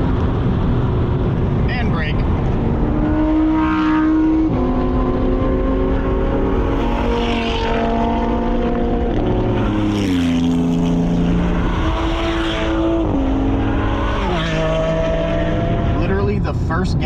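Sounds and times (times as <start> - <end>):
sports car engine revving: 0.0 - 16.7
road and wind noise: 0.0 - 17.0.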